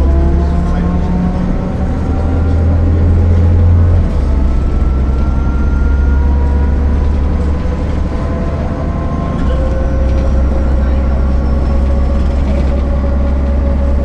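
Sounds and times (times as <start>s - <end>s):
bus engine drone: 0.0s - 14.0s
rising engine whine: 0.0s - 14.0s.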